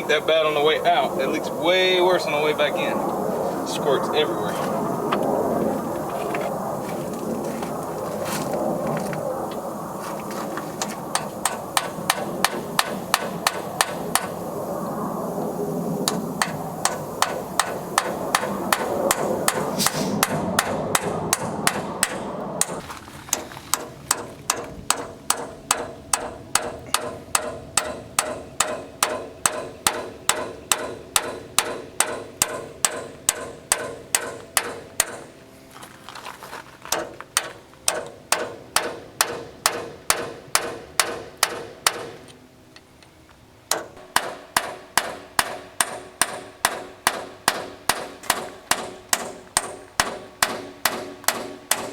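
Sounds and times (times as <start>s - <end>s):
steady running noise: 0.0s - 51.9s
hammer striking metal: 16.4s - 35.3s, 43.7s - 51.9s.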